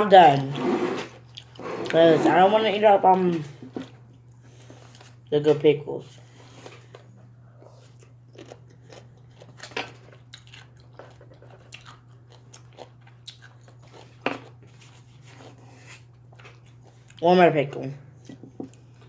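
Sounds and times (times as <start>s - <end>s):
person crunching pickle chips: 7.8s - 17.1s.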